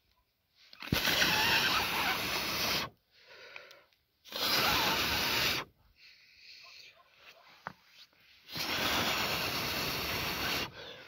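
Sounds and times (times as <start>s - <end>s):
person blowing air onto fire: 0.8s - 3.0s, 3.6s - 5.7s, 8.4s - 11.0s
breath intake: 8.5s - 11.0s.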